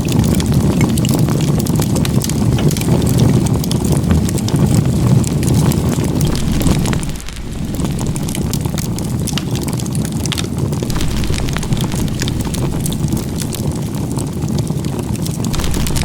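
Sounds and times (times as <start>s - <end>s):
wood fire crackling and popping: 0.0s - 16.0s
fire low rumble: 4.8s - 16.0s.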